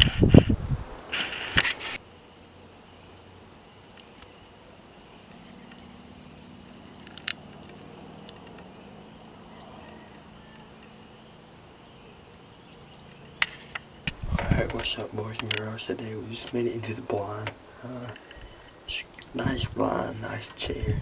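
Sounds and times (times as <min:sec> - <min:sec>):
insect drone: 0:00.0 - 0:15.2
low distant hum: 0:00.0 - 0:21.0
bird chirps: 0:02.0 - 0:14.0.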